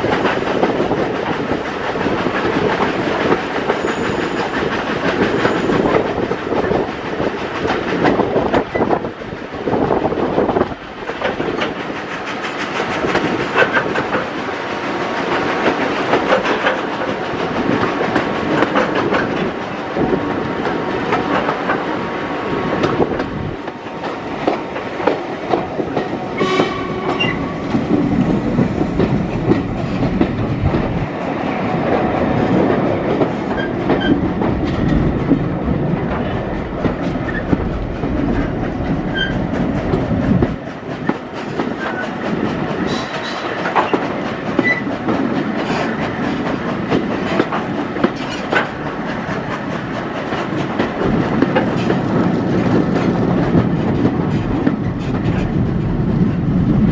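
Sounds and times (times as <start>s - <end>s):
train coach rumble and rattle: 0.0s - 56.9s
wheels clattering over rail joints: 31.9s - 56.8s.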